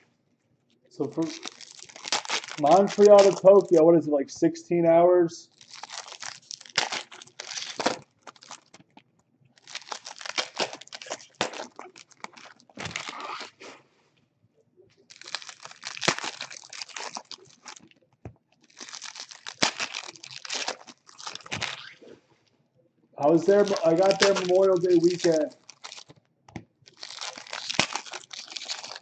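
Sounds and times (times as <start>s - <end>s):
wrappers crinkling and tearing: 1.0s - 3.8s, 5.5s - 13.8s, 15.0s - 18.0s, 18.6s - 22.0s, 23.2s - 26.2s, 26.8s - 29.0s.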